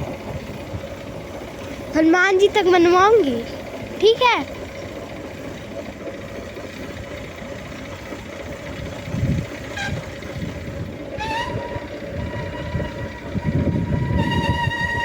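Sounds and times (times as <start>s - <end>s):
low rumble: 8.8s - 15.0s
horn held note: 9.7s - 10.2s, 11.2s - 15.0s.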